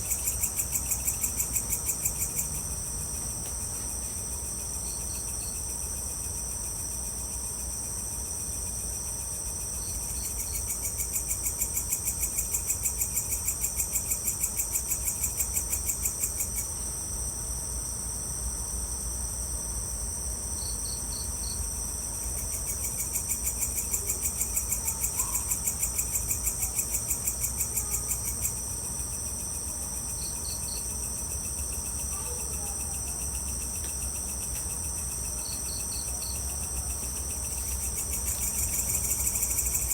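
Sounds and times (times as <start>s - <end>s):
insects trilling: 0.0s - 39.9s
pulsing insect call: 20.6s - 39.9s.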